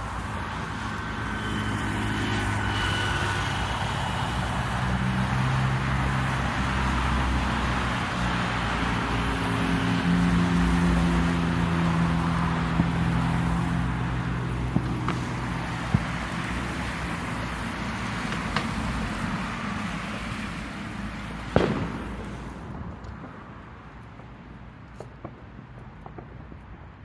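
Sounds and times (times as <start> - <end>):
vehicle engine hum: 0.0 - 24.2
distant fireworks bangs: 14.5 - 17.4, 18.2 - 19.3, 21.4 - 23.5.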